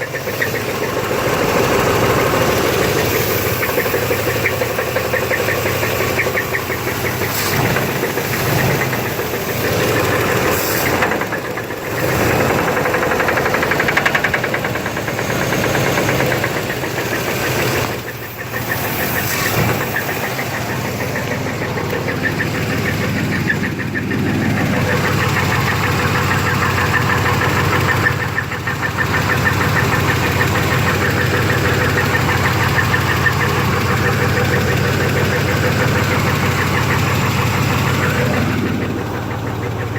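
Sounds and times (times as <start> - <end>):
engine running with knocking: 0.0 - 39.9.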